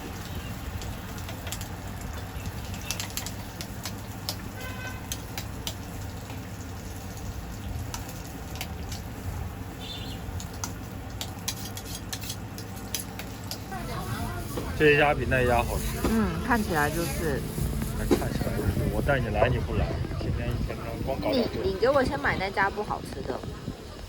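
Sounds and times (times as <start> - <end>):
sharp clicks and taps: 2.9 - 4.5
steady low rumble: 13.6 - 24.0.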